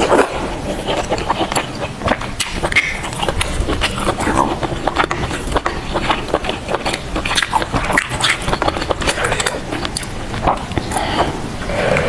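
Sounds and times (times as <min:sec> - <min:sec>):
person chewing and biting food: 0:00.0 - 0:12.0.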